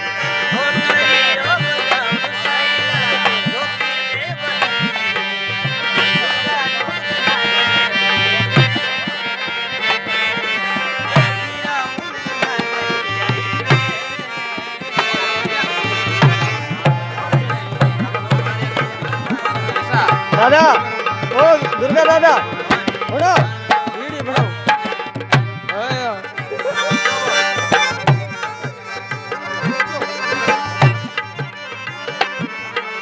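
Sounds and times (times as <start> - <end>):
ornamented folk melody: 0.0 - 33.0
hand drum rhythm: 4.4 - 33.0.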